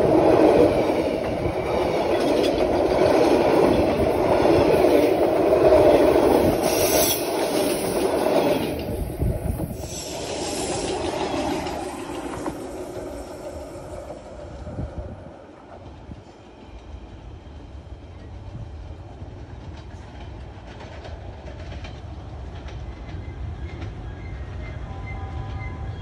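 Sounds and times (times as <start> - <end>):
train wheels clicking over rail joints: 0.0 - 14.5, 19.2 - 24.5.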